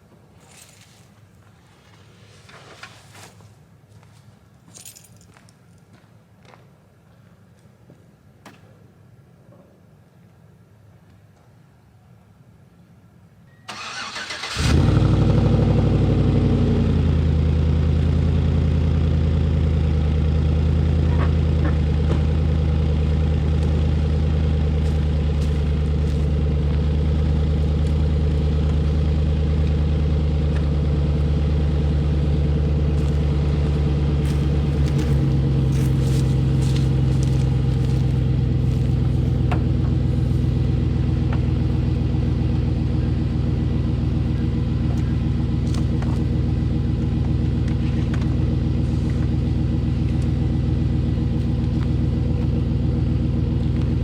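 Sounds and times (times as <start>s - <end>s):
truck engine starting and idling: 13.7s - 54.0s.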